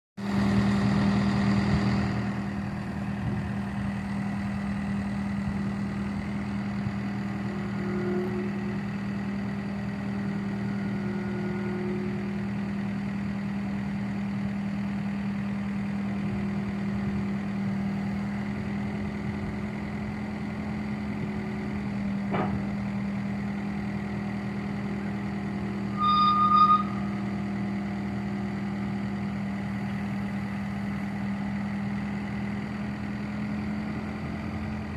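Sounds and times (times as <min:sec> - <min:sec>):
diesel engine idling: 0:00.2 - 0:34.9
short loud beep: 0:25.9 - 0:27.2.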